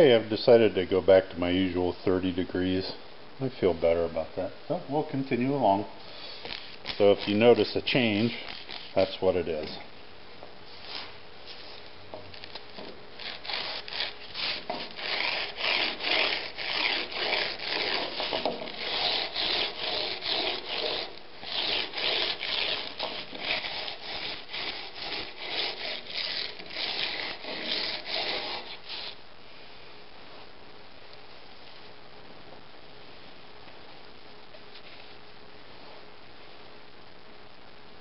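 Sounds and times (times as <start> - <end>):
chisel scraping on abrasive paper: 6.1 - 9.8, 12.4 - 29.2.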